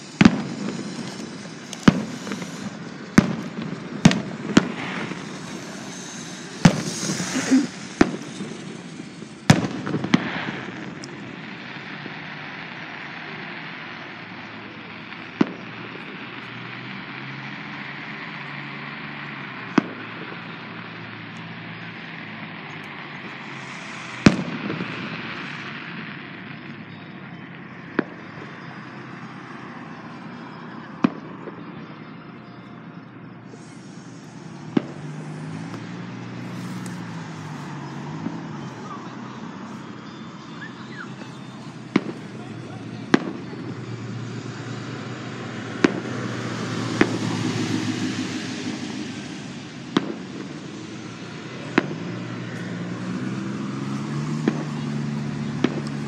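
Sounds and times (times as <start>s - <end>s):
steady background hiss: 0.0s - 10.2s
fireworks bangs: 0.0s - 56.0s.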